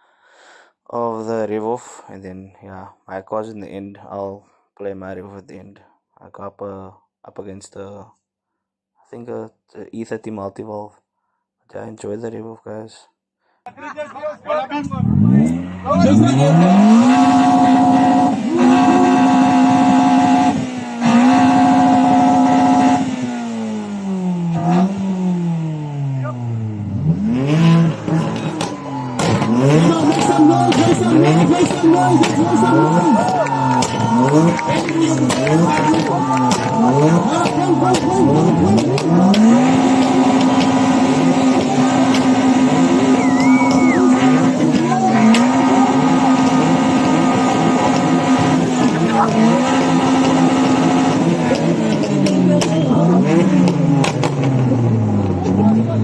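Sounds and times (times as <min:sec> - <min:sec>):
car engine revving: 0:14.8 - 0:56.0
other engines revving: 0:14.8 - 0:56.0
short high whistle-like tone: 0:43.2 - 0:44.0.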